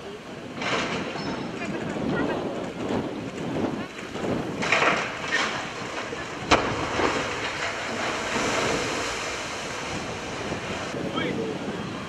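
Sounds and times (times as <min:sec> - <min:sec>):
sea water and waves: 0:00.0 - 0:12.0
wind buffeting microphone: 0:00.0 - 0:12.0.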